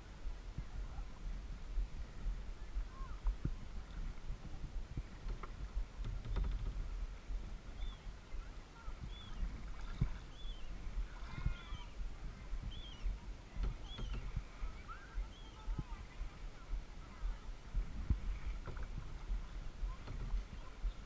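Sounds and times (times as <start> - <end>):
rumble of water and wind: 0.0 - 21.0
knocks: 5.3 - 6.8, 18.6 - 19.0
bird chirping: 7.7 - 10.8, 12.6 - 15.8.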